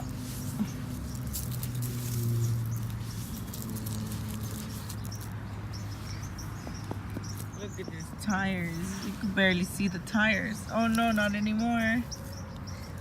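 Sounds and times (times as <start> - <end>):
toy trucks scraping through sand: 0.0 - 6.2.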